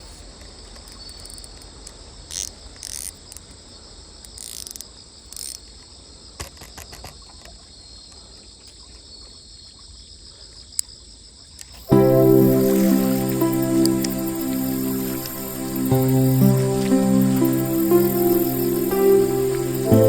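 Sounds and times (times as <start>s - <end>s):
insects chirring: 10.8s - 20.0s.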